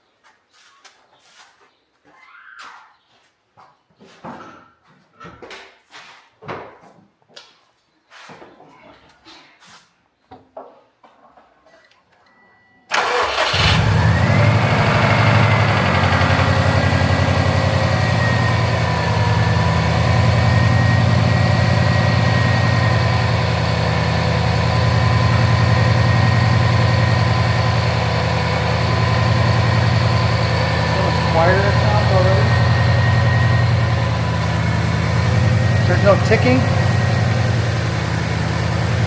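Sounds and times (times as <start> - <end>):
car engine starting and idling: 12.9 - 39.0.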